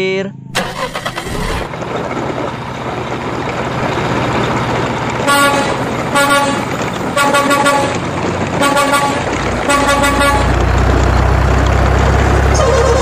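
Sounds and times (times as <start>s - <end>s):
truck engine running: 0.0s - 13.0s
truck horn tooting: 5.2s - 10.7s, 12.5s - 13.0s.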